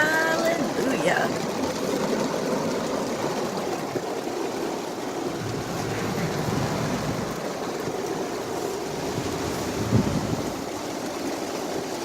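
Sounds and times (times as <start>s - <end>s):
heavy rain on a car: 0.0s - 12.0s
tyres hissing on wet road: 0.0s - 12.0s.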